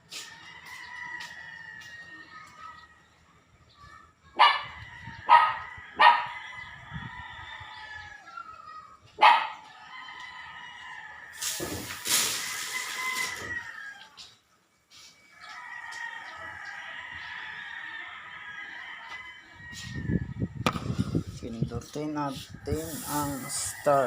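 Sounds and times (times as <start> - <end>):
dog barking: 4.4 - 6.3, 9.2 - 9.6
rushing hiss: 11.4 - 12.9, 22.8 - 23.9.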